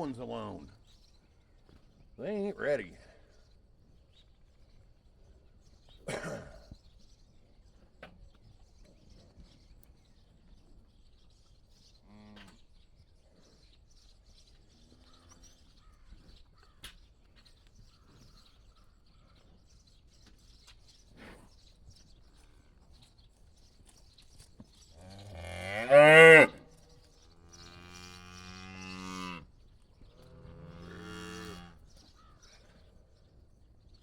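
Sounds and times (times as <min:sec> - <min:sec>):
faint bird chirps: 0:00.0 - 0:25.4
cattle calling: 0:25.4 - 0:26.6.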